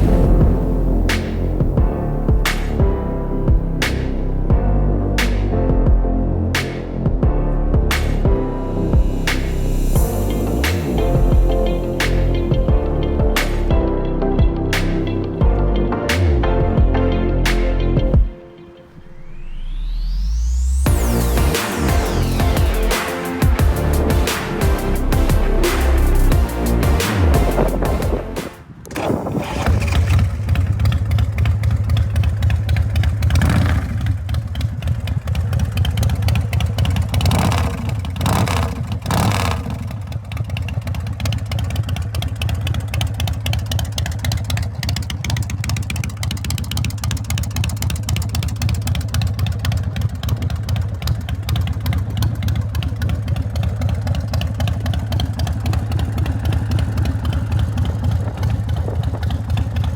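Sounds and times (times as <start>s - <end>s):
motorcycle engine revving and idling: 20.8s - 59.9s.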